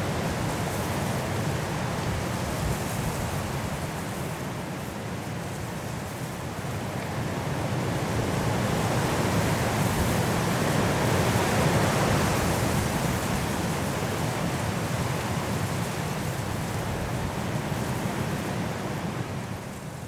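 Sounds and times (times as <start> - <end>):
strong wind through trees: 0.0 - 20.0.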